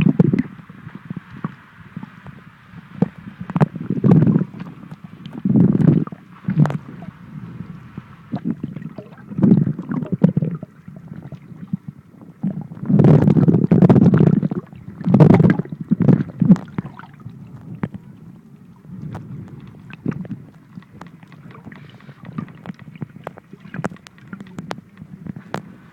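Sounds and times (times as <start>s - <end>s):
plastic crackles: 19.1s - 25.8s.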